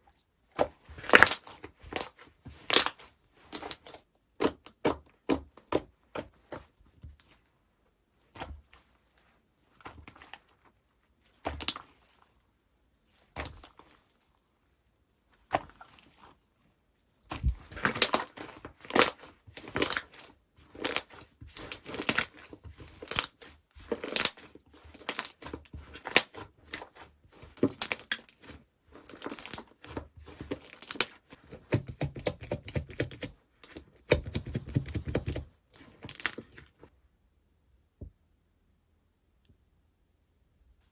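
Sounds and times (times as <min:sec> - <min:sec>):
slime squished by hand: 0:00.6 - 0:06.7, 0:17.3 - 0:36.9.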